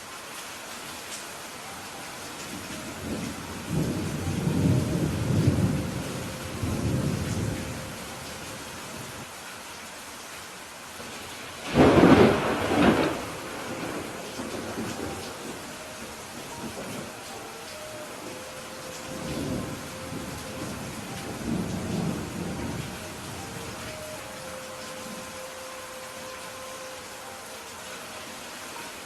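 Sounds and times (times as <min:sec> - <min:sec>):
steady rain: 0:00.0 - 0:29.0
thunder rumble: 0:11.6 - 0:17.2, 0:18.2 - 0:24.0.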